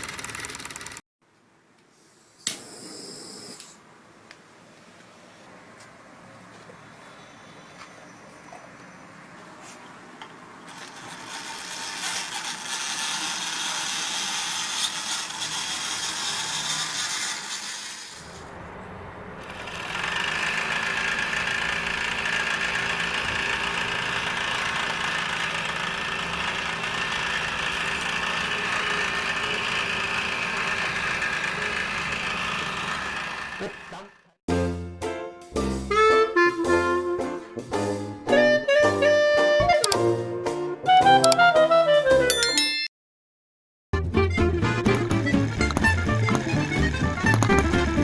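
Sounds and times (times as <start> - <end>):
another engine running: 0.0 - 1.0, 18.2 - 34.3, 44.4 - 48.0
small model engine running: 0.0 - 1.0, 10.7 - 18.4, 19.4 - 34.3, 44.8 - 48.0.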